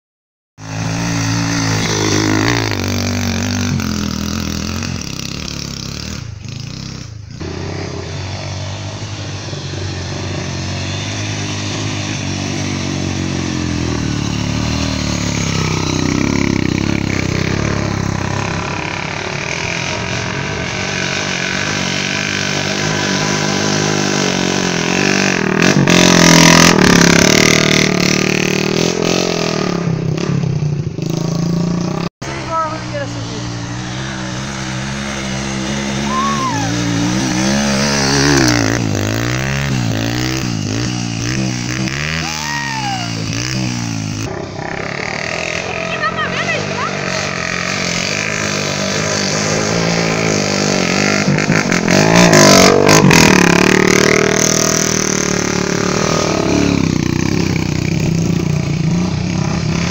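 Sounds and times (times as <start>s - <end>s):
motorcycle engine revving: 0.6s - 59.9s.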